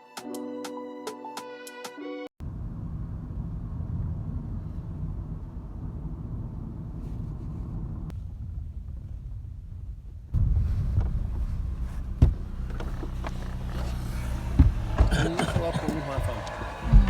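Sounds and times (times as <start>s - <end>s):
wind buffeting microphone: 3.9s - 17.0s.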